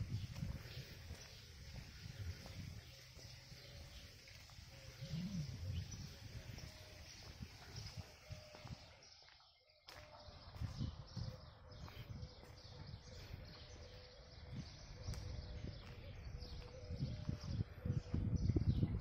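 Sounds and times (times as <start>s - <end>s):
small birds chirping: 0.0s - 19.0s
low rumble: 5.0s - 6.5s.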